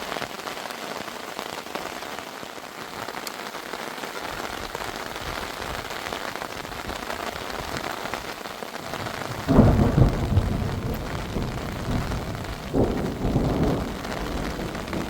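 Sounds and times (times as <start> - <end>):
heavy rain falling: 0.0 - 15.0
deep rumble of thunder: 8.8 - 15.0.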